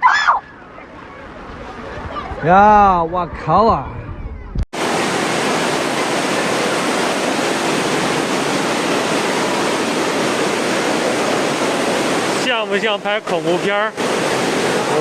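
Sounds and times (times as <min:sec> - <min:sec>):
fast-flowing floodwater rushing: 0:04.8 - 0:15.0.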